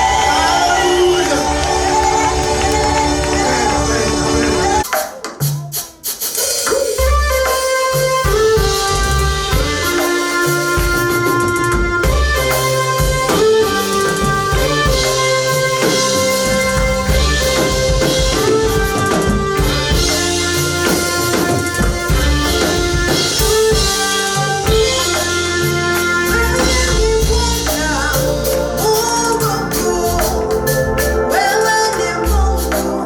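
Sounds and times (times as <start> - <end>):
drum kit beat: 0.0 - 33.0
guitar: 7.0 - 33.0
held keyboard chords: 7.0 - 33.0.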